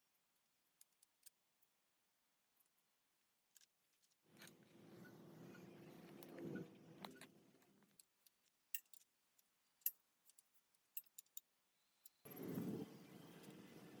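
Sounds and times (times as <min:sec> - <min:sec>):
light metallic clinks and taps: 0:07.9 - 0:12.2.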